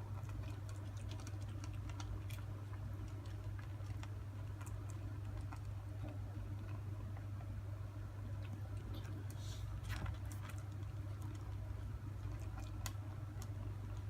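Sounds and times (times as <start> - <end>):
kitten mouth clicks while feeding: 0.0 - 6.8.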